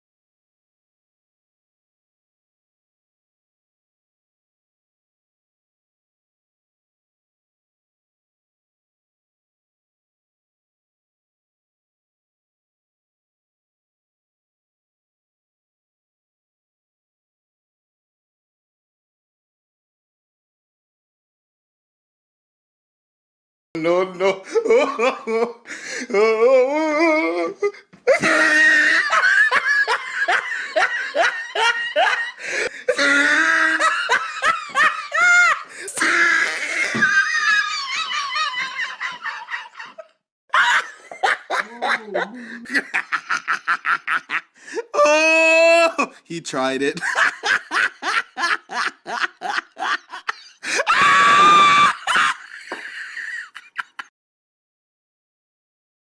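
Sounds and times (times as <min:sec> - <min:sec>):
person laughing hard: 0:24.0 - 0:46.2, 0:47.0 - 0:54.1
high-pitched scream: 0:50.7 - 0:52.2.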